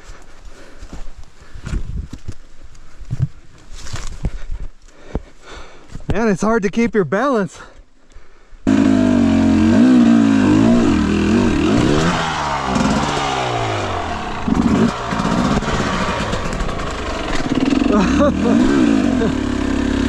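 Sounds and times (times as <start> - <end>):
dirt bike engine revving: 8.7 - 20.0.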